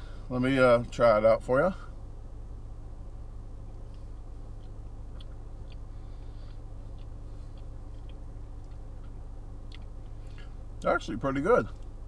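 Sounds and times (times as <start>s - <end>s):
low electrical hum: 0.0s - 12.0s
man chewing with mouth clicks: 3.8s - 10.5s.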